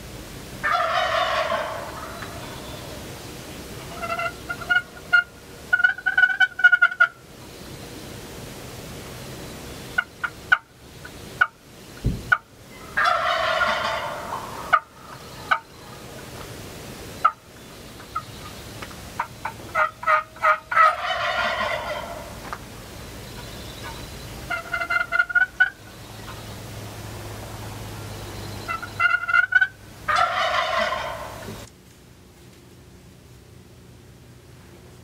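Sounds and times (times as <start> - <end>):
turkey gobbling: 0.6 - 3.0, 3.8 - 7.2, 10.0 - 11.6, 12.3 - 16.3, 17.2 - 18.6, 19.2 - 22.5, 23.3 - 26.4, 28.7 - 31.7
turkey yelping: 0.6 - 3.0, 3.8 - 7.2, 12.3 - 16.0, 19.2 - 22.4, 23.4 - 26.4, 28.7 - 31.7.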